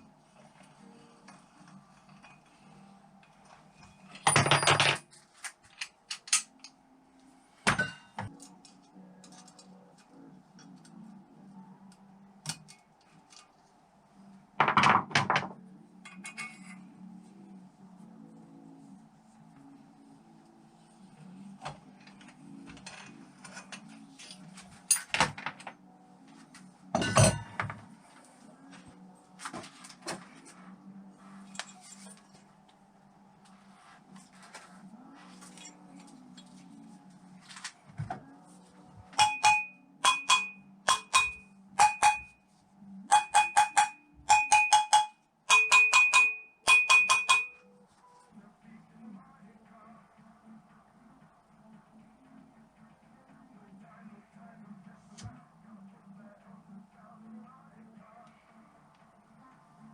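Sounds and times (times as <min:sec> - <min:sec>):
metal tools clinking: 0:16.1 - 0:16.8, 0:22.7 - 0:25.2.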